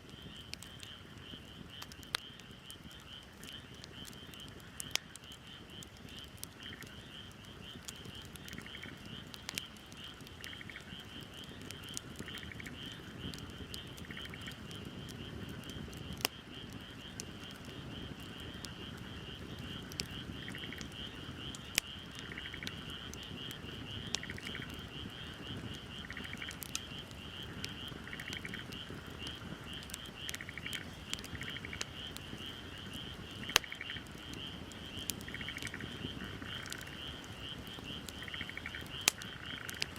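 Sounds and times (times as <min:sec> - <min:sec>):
wood fire crackling and popping: 0:00.0 - 0:39.9
frog pulsed calls: 0:10.4 - 0:10.9, 0:22.2 - 0:23.0, 0:24.1 - 0:26.6, 0:27.4 - 0:29.4, 0:30.0 - 0:32.5, 0:33.4 - 0:34.2, 0:35.2 - 0:39.9
frog trilling: 0:38.2 - 0:39.9.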